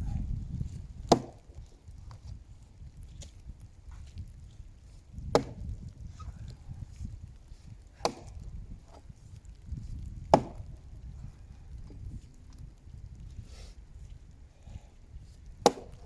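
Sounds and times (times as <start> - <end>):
axe striking tree trunk: 1.0 - 1.7, 5.1 - 5.8, 7.9 - 9.0, 10.2 - 10.8, 15.6 - 16.0.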